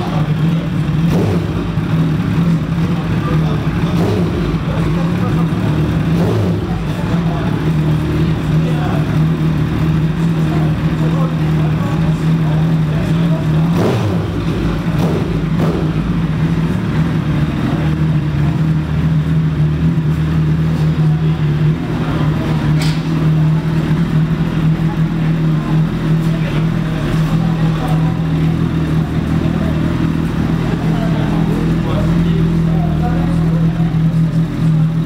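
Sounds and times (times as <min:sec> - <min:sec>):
motorcycle engine running: 0:00.0 - 0:35.0
sharp click: 0:22.8 - 0:23.2.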